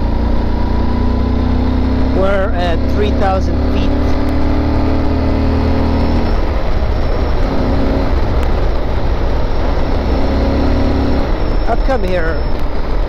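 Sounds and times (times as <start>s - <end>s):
motorcycle engine running: 0.0s - 13.0s
wind noise: 4.1s - 13.0s.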